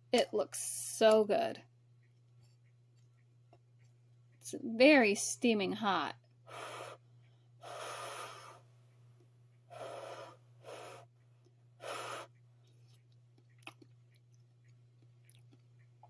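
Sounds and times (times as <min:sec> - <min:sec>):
person blowing puffs of breath: 0:06.5 - 0:08.6, 0:09.7 - 0:11.1, 0:11.8 - 0:12.3.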